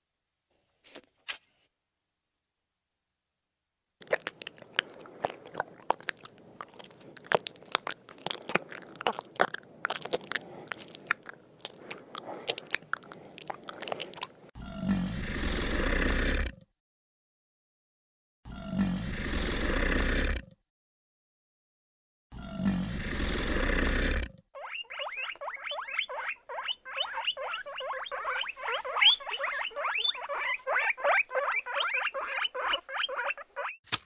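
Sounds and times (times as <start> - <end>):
animal crunching food: 4.0 - 14.5.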